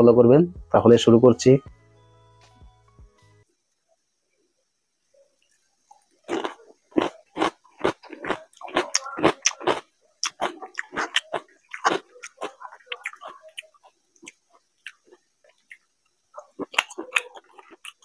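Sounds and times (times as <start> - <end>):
close chewing of food: 5.4 - 18.0.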